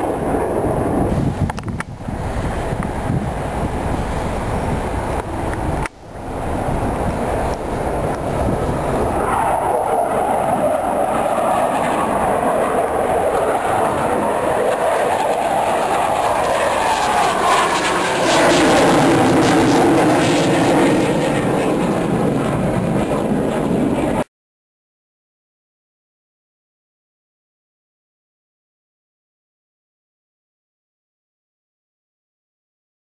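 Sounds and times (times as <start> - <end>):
jet engines flying past: 0.0 - 24.3.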